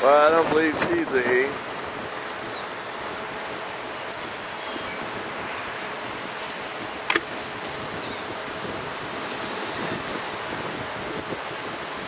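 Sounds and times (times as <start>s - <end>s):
surf on a beach: 0.0s - 12.0s
wind: 0.0s - 12.0s
seagulls calling: 1.8s - 10.2s.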